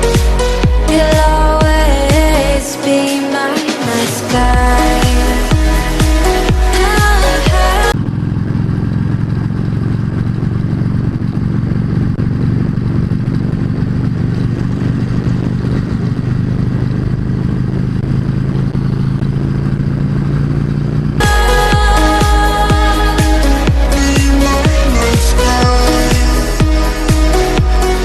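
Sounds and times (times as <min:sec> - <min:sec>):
motorcycle engine cruising: 0:00.0 - 0:28.0.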